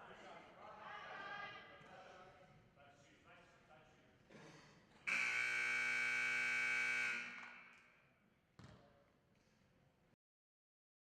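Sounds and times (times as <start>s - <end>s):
scoreboard buzzer horn blast: 5.1s - 7.5s.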